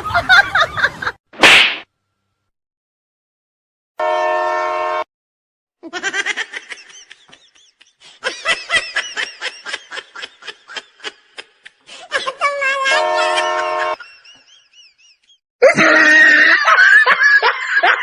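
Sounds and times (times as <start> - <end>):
train horn blast: 4.0 - 5.1, 12.9 - 14.0
rapid high-pitched laughter: 5.8 - 18.0.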